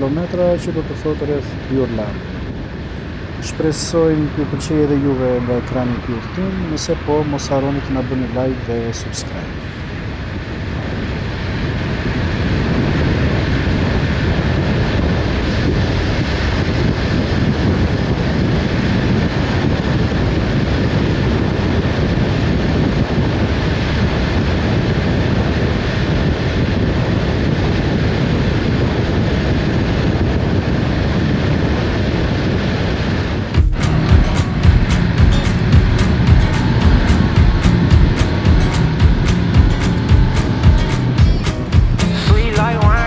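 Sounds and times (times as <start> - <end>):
road noise: 0.0 - 10.5, 33.5 - 43.0
wind rushing over microphone: 0.0 - 43.0
motorcycle engine: 33.6 - 43.0.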